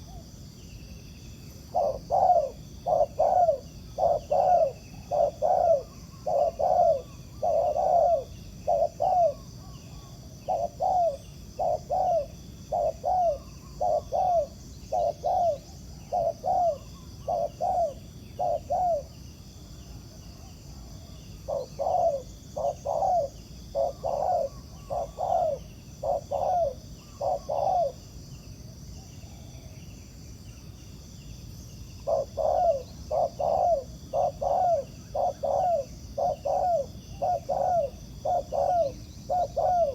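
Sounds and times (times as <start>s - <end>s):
doves cooing: 1.7s - 19.1s, 21.4s - 28.0s, 32.0s - 39.9s.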